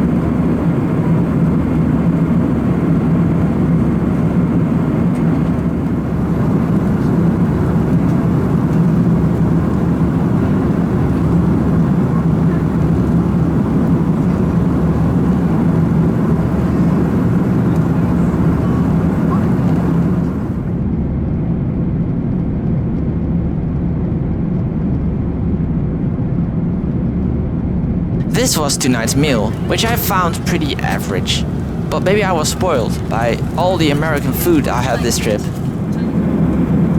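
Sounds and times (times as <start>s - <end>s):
jet engines humming: 28.2s - 36.9s
airflow rushing in aircraft cabin: 28.3s - 36.9s.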